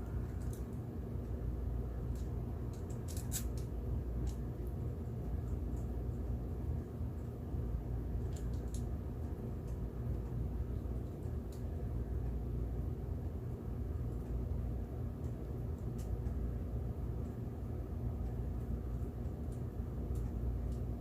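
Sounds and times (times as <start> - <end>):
low background rumble: 0.0 - 21.0
small parts clicking: 0.3 - 0.8, 2.1 - 4.4.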